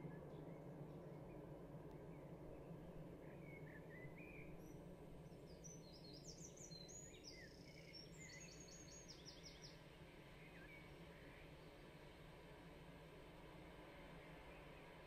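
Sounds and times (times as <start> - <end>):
birdsong chirps: 0.0 - 11.7
low steady hum: 0.0 - 15.0.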